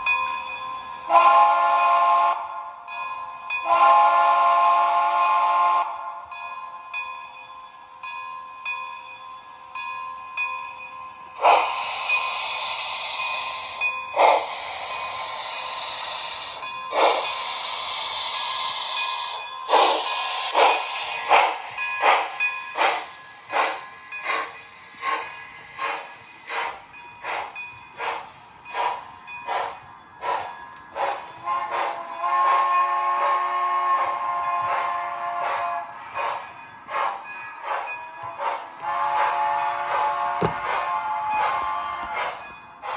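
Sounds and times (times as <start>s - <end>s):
steam locomotive chuffs: 0.0s - 6.3s, 10.4s - 42.9s
long hissing blasts: 11.3s - 29.7s.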